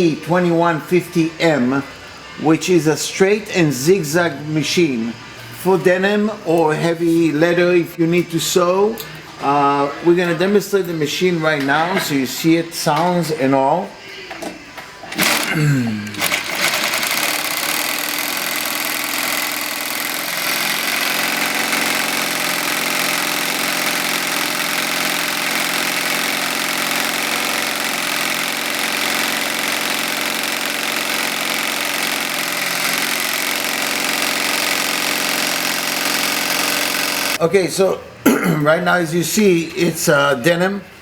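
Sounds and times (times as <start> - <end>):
sewing machine stitching denim: 15.1 - 37.4.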